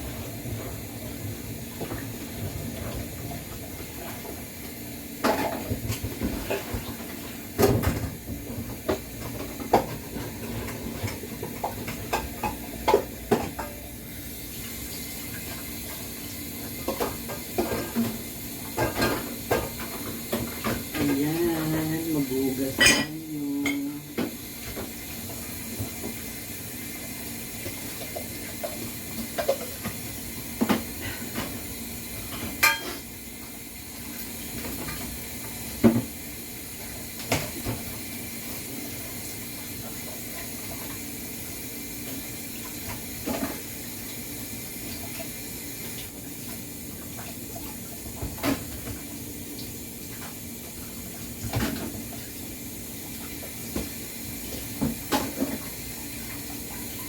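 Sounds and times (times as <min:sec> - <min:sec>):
dishes and cutlery clinking: 0:22.7 - 0:23.9, 0:32.6 - 0:33.0.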